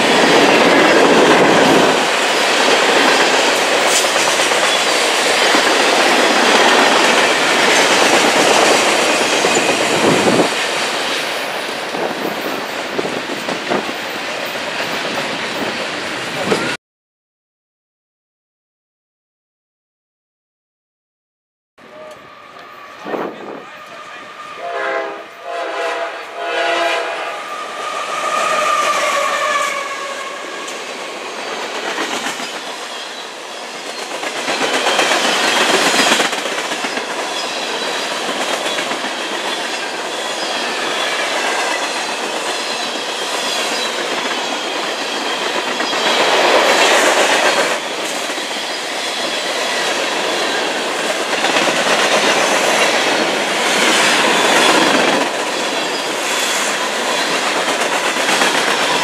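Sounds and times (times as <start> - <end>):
train horn blasts: 21.8 - 30.7.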